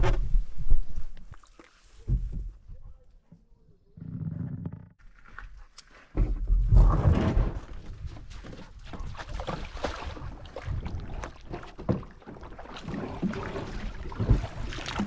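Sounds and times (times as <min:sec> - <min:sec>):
paddle splashes: 0:05.2 - 0:15.0.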